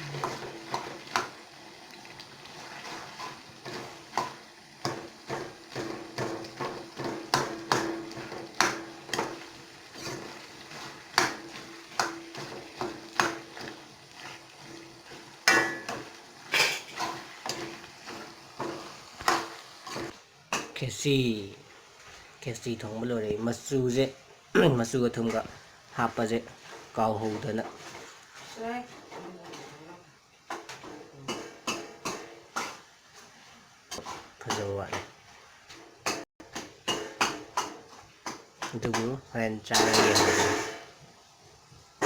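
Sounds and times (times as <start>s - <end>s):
utensils and dishes clinking: 15.4s - 20.7s, 38.6s - 40.9s.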